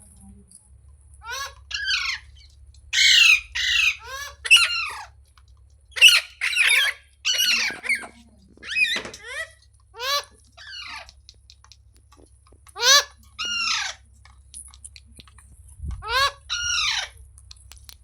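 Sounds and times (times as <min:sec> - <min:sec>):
parrot squawking: 0:01.2 - 0:05.1, 0:05.9 - 0:11.2, 0:12.7 - 0:14.0, 0:16.0 - 0:17.2.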